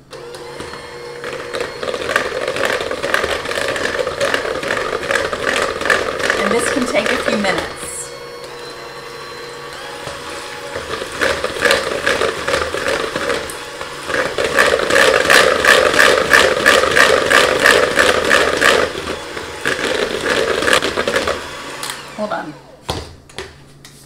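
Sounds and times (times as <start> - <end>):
electric mixer motor hum: 0.0 - 22.8.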